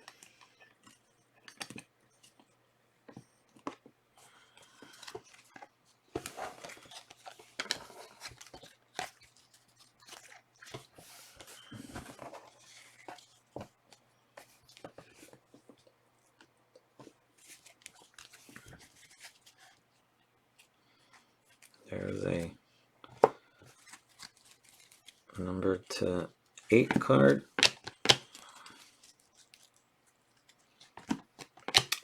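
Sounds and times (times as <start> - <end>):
cards being shuffled: 4.8 - 13.4, 23.7 - 26.0, 26.6 - 29.8, 30.4 - 32.0
foil wrappers crinkling: 23.7 - 25.9, 26.6 - 32.0.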